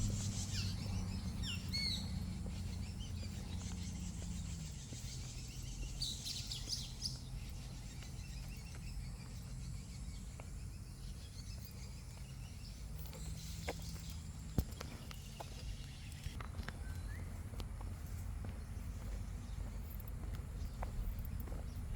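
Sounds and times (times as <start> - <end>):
low background rumble: 0.0 - 21.9
small birds chirping: 0.0 - 21.9.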